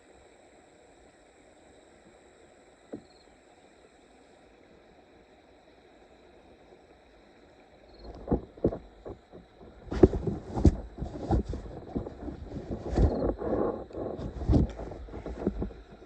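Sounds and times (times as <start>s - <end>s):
faint hiss: 0.0s - 16.0s
clothing rubbing on microphone: 8.1s - 16.0s.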